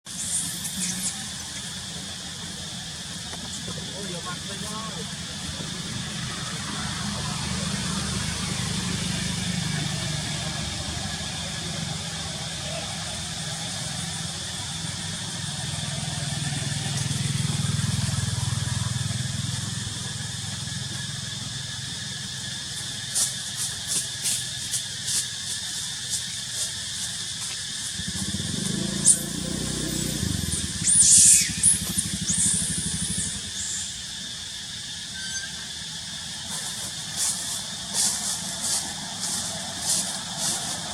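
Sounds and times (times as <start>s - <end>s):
high hiss: 0.1s - 40.9s
monkey screaming: 28.4s - 33.9s.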